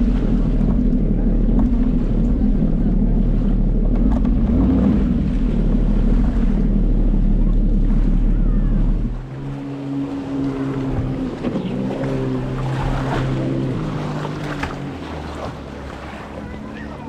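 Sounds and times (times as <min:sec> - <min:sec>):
water splashing around hull: 0:00.0 - 0:17.0
watercraft engine revving: 0:00.0 - 0:17.0.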